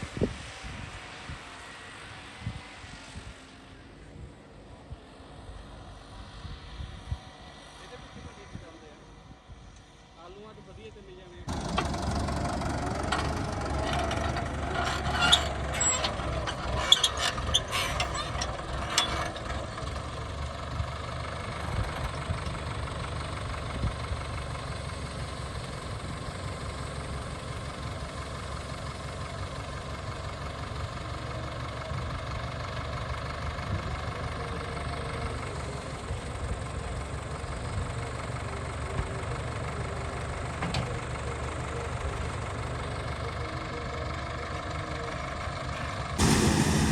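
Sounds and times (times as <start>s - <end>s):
tractor diesel engine idling: 9.9s - 46.9s.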